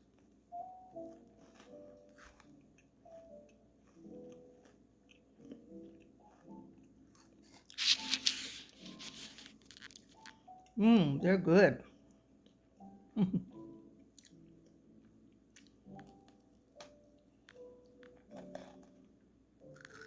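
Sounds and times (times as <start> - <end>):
crunchy granola bar chewing: 0.0 - 10.8, 14.1 - 14.7, 15.5 - 20.0.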